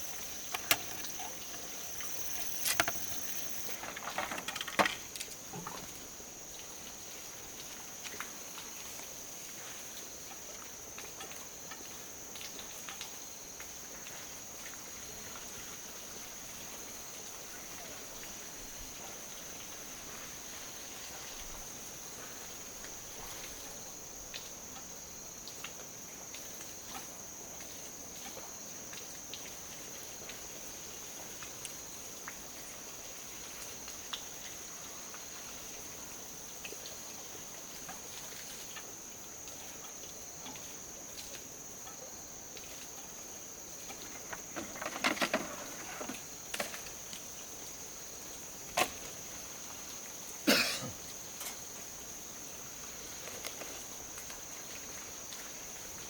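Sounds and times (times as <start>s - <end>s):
faint ticks: 0.0s - 3.8s
insects droning: 0.0s - 56.0s.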